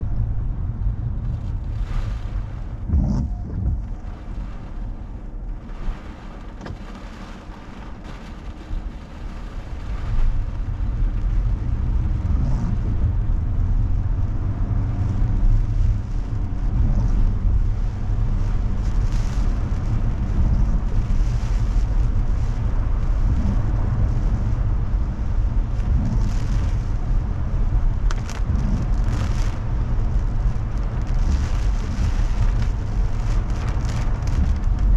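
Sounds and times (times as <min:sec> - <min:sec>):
car engine and road rumble: 0:00.0 - 0:34.9
rain and gusts hitting car: 0:00.0 - 0:34.9.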